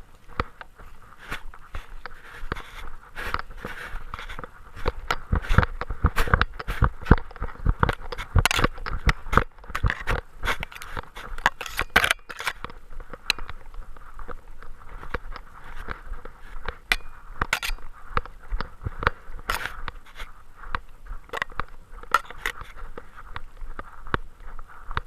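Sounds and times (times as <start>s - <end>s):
camera mount knocking and scraping: 4.1s - 13.6s, 16.6s - 19.8s, 21.3s - 22.8s.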